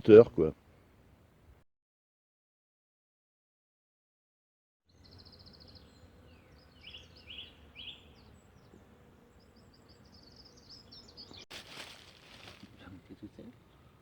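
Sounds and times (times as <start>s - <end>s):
songbirds chirping: 4.9s - 14.0s
faint woodland hiss: 5.2s - 14.0s.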